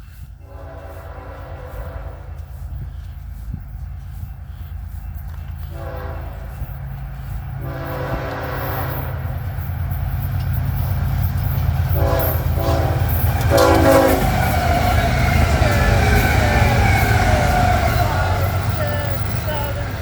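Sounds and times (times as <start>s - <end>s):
low rumble of diesel engines: 0.0s - 20.0s
locomotive air horn blasts: 0.4s - 2.6s, 5.6s - 6.8s, 7.6s - 9.4s, 11.9s - 20.0s.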